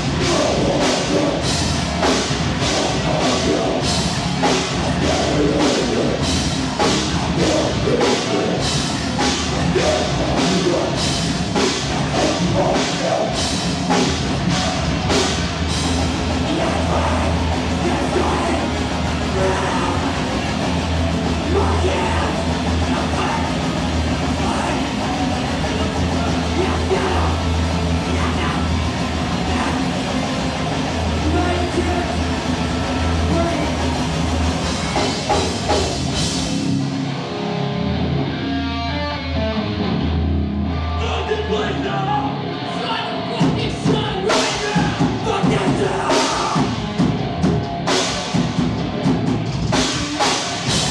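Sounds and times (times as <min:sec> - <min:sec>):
drum and cymbal hits: 0:00.0 - 0:36.9, 0:43.5 - 0:50.9
heavy bass line: 0:00.0 - 0:50.9
heavy rock band playing: 0:00.0 - 0:50.9
shouted vocals: 0:16.0 - 0:35.3, 0:41.0 - 0:46.8.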